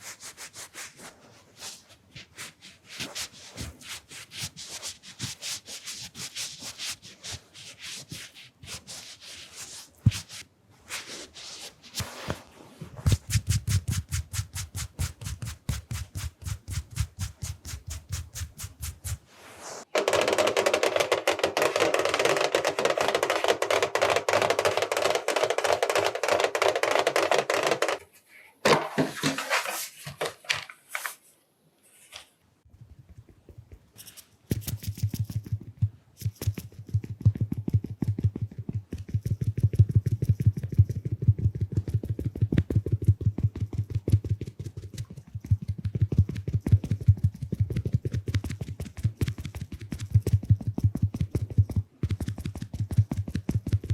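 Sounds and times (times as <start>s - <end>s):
makeup sponge dabbing microphone: 0.0s - 19.9s, 32.7s - 53.9s.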